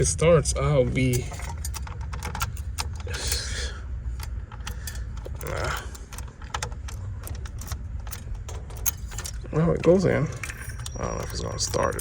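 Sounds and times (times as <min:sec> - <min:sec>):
key clicking in ignition: 0:01.0 - 0:03.5, 0:04.1 - 0:12.0
keys jangling: 0:04.2 - 0:12.0.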